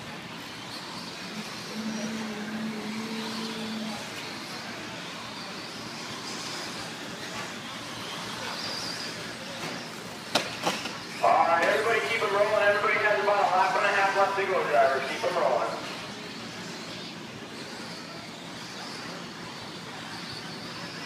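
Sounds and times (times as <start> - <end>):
rc truck motor whine: 0.0 - 13.2, 13.9 - 21.0
low hum: 1.3 - 4.2.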